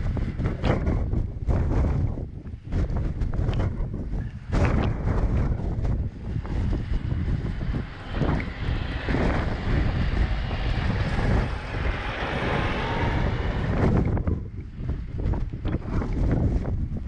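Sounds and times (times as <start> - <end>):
wind buffeting microphone: 0.0 - 17.0
machine engine running: 5.0 - 14.5.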